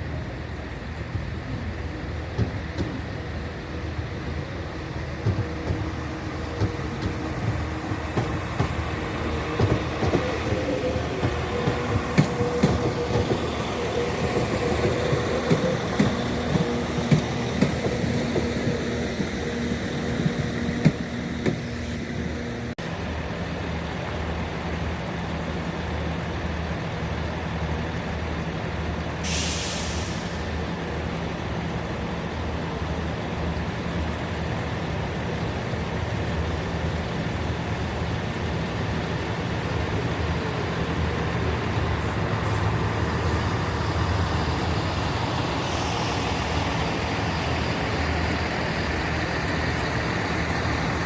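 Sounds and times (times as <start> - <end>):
diesel train engine idling: 0.0 - 51.0
air brake hiss: 29.2 - 30.6.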